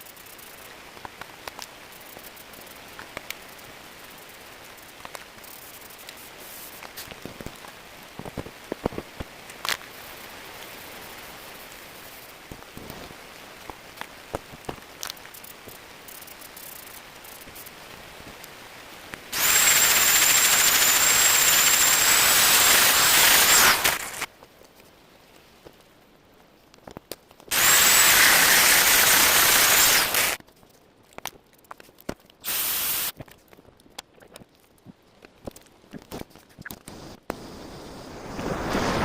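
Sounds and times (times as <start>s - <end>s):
gas jet hissing: 19.3s - 24.3s, 27.5s - 30.4s, 32.4s - 33.1s.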